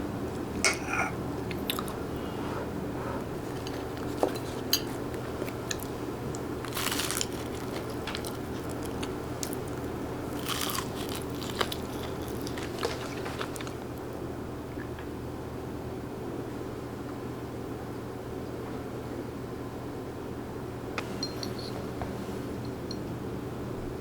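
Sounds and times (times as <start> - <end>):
steady low hum: 0.0 - 14.7
crunchy food being chewed: 1.5 - 2.3, 3.3 - 14.2.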